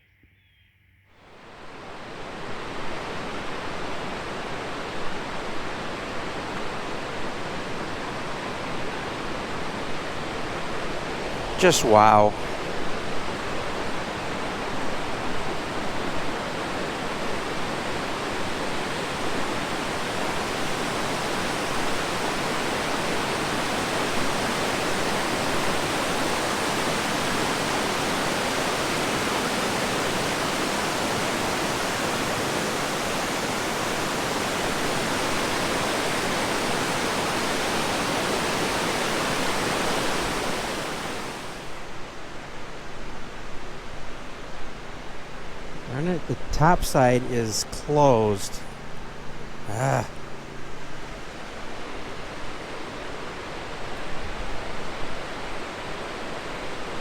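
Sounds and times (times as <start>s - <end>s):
waterfall rushing: 1.5s - 42.8s, 44.3s - 48.6s, 49.4s - 57.0s.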